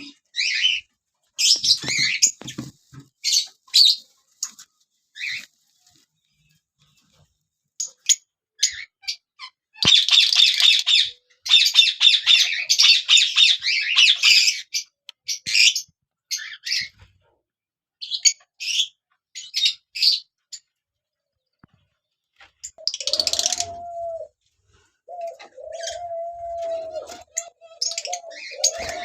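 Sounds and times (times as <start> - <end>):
parrots chattering and squawking: 0.0 - 5.6, 7.8 - 17.0, 22.6 - 24.3, 25.1 - 29.0.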